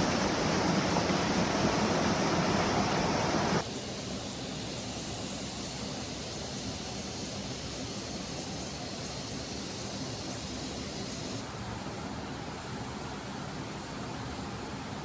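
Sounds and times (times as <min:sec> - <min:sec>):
stream water rushing: 0:00.0 - 0:03.6.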